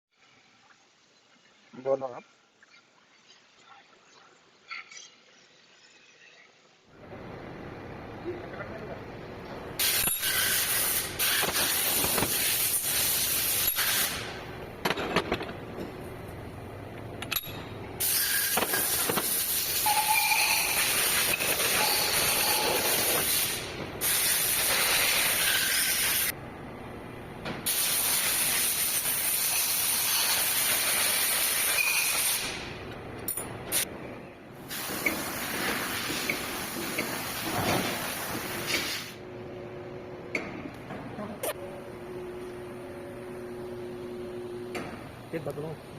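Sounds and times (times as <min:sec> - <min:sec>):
loud hissing bursts: 0:09.8 - 0:14.4, 0:18.0 - 0:19.9, 0:20.7 - 0:26.3, 0:27.7 - 0:32.6.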